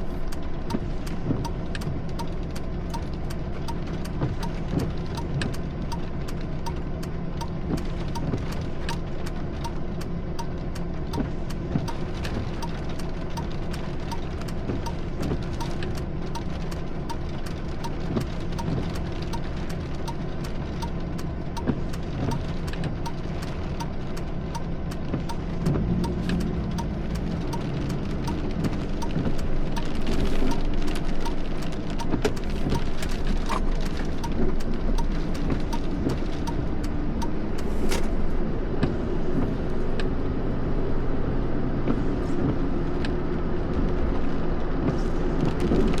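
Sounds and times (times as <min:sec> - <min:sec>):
car engine and road rumble: 0:00.0 - 0:46.0
sharp ticks: 0:00.3 - 0:09.0, 0:12.6 - 0:16.5, 0:17.8 - 0:37.4.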